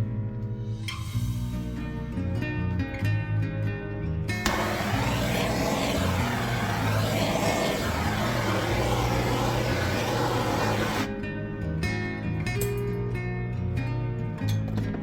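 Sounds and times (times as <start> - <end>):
faint guitar music: 1.6 - 4.4, 11.1 - 15.0
electric blower rush of air: 4.5 - 11.1.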